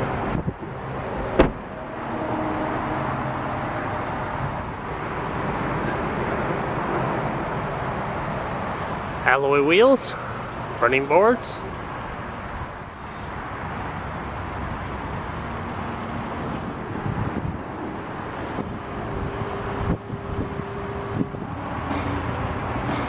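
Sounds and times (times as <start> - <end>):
wind on microphone: 0.0 - 0.8, 16.8 - 17.8, 18.4 - 21.7
road traffic passing: 0.0 - 23.0.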